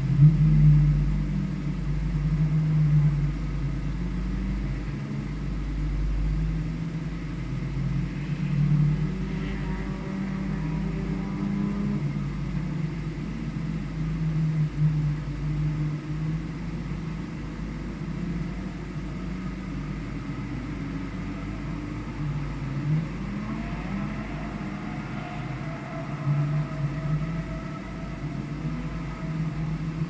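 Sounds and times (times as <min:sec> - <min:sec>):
vehicle engine revving: 0:00.0 - 0:13.9, 0:18.1 - 0:30.0
steady rushing noise: 0:18.7 - 0:30.0.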